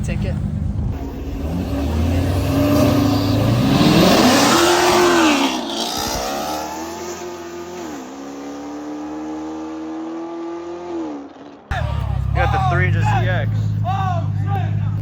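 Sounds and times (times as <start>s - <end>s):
cars accelerating hard: 0.8s - 15.0s.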